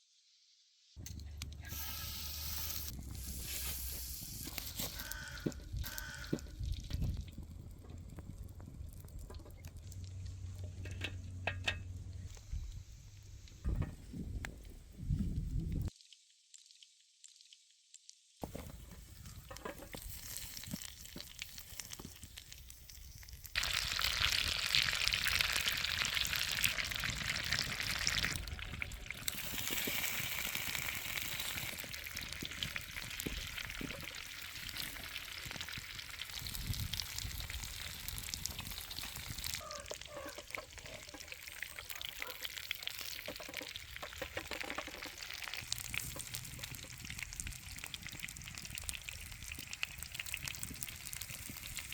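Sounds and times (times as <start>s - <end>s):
food sizzling in frying pan: 19.0s - 51.9s.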